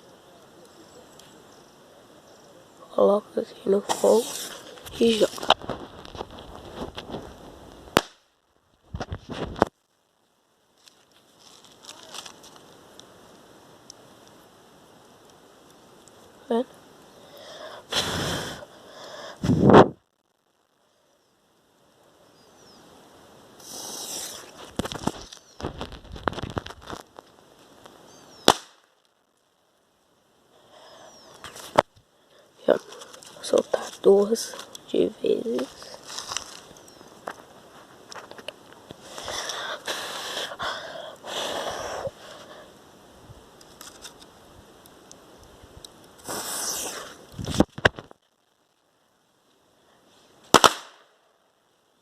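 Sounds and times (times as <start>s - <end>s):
firecrackers hissing and crackling: 0.2s - 9.8s, 10.7s - 20.0s, 22.8s - 29.2s, 30.4s - 48.2s, 49.7s - 51.1s
firecracker fuse hiss: 3.7s - 5.5s, 17.2s - 19.9s, 23.5s - 26.3s, 39.0s - 42.6s, 46.1s - 47.7s, 50.1s - 51.0s
firecrackers cracking: 3.8s - 9.8s, 23.6s - 29.2s, 45.9s - 48.2s, 50.5s - 51.2s
firecracker bang: 50.5s - 51.1s.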